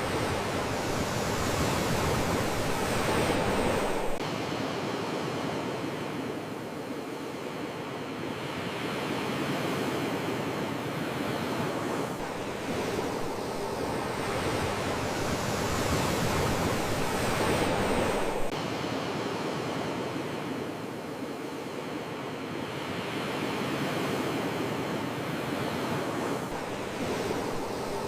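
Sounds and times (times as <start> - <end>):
sea waves washing ashore: 0.0 - 28.0.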